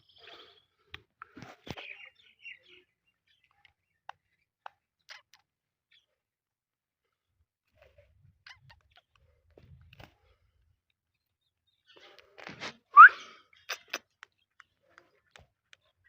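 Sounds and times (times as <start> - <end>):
parakeet chirps and chatter: 5.0 - 6.0, 8.4 - 9.1.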